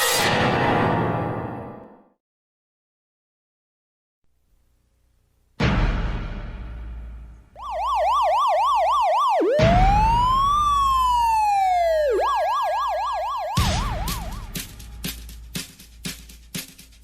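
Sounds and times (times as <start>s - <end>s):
electronic siren warbling: 7.6s - 14.6s
drum hits: 13.6s - 15.7s.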